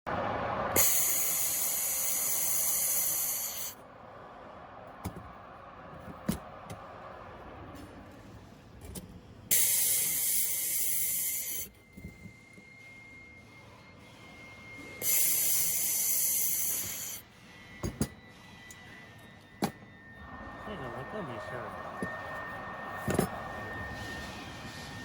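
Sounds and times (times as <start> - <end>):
laser welding gun hissing: 0.8 - 3.8, 9.5 - 11.7, 15.0 - 17.2.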